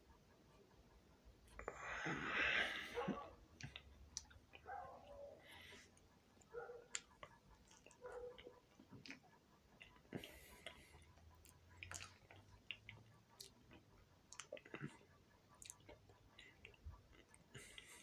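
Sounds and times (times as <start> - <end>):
person chewing wet mouth clicks: 3.6 - 4.6, 6.9 - 9.2, 9.8 - 17.8.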